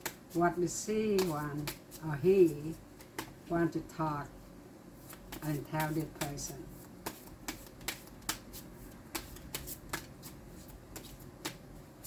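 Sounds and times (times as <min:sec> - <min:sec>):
cards being shuffled: 0:05.0 - 0:11.7.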